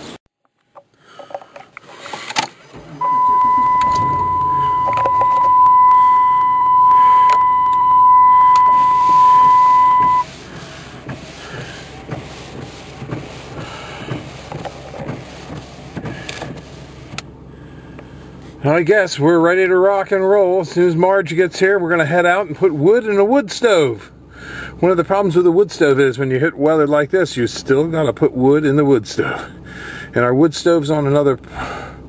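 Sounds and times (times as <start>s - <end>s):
low rumbling: 2.8s - 12.5s
loud steady electronic tone: 3.0s - 10.3s.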